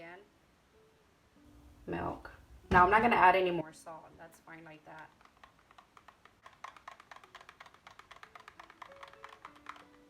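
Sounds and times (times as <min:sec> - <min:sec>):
faint music: 0:00.0 - 0:10.0
utensil clicking against a bowl: 0:05.0 - 0:10.0.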